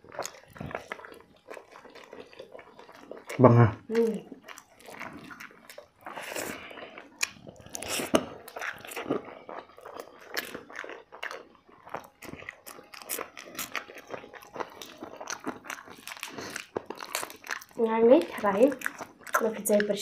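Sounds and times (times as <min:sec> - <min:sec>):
person chewing crunchy food: 0:00.0 - 0:20.0.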